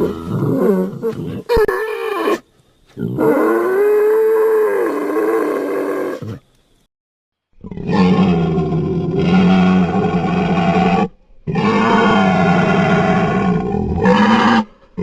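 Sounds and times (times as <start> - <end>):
roar-like creature calls: 7.6 - 15.0.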